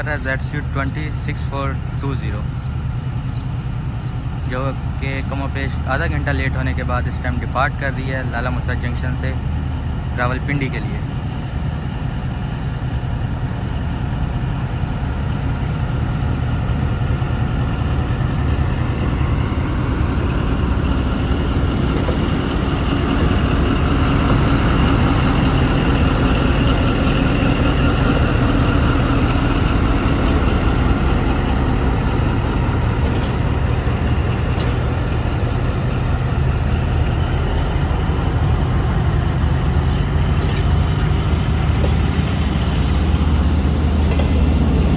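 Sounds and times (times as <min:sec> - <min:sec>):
diesel locomotive engine drone: 0:00.0 - 0:44.9.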